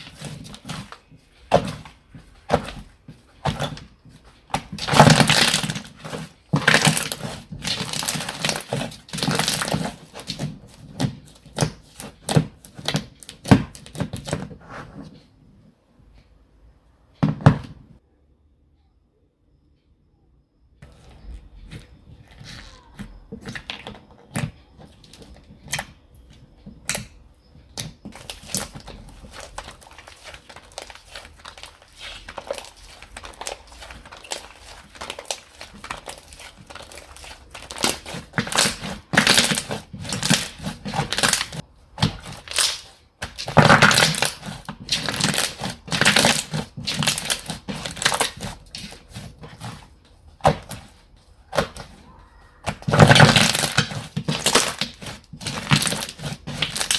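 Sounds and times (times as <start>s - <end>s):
slime squished by hand: 4.5s - 14.3s, 28.1s - 56.9s.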